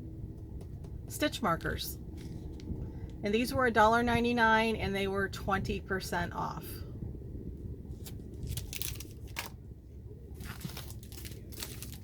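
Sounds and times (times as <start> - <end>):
packaging crinkling and rustling: 7.9 - 9.6, 10.4 - 12.0.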